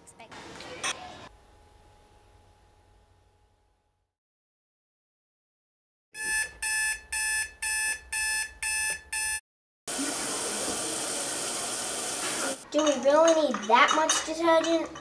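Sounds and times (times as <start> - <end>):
alarm clock beeping: 6.2 - 9.4.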